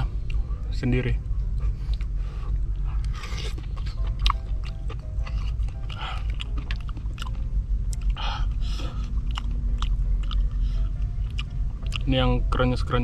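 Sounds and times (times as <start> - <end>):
steady low rumble: 0.0 - 13.0
person chewing crunchy food: 1.8 - 12.1.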